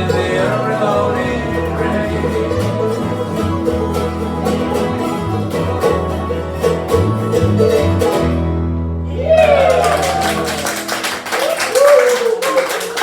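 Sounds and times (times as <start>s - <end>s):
banjo strumming: 0.0s - 9.0s
sustained bass notes: 0.0s - 10.8s
plucked guitar: 0.0s - 11.3s.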